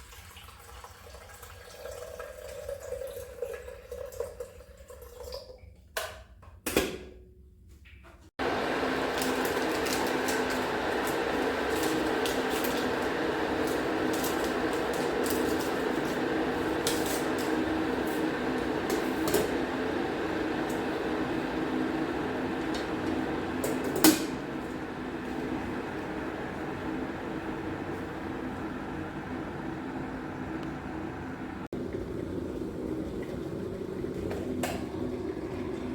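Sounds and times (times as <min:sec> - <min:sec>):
steady hum: 0:08.4 - 0:35.9.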